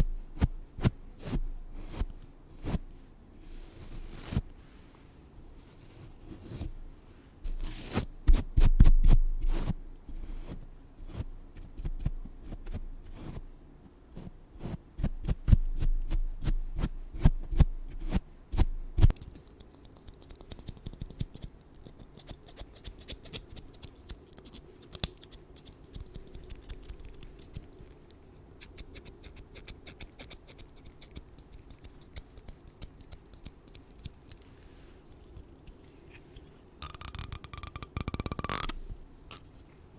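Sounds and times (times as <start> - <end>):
crickets chirring: 0.0 - 39.9
scratching at microphone: 0.4 - 6.8.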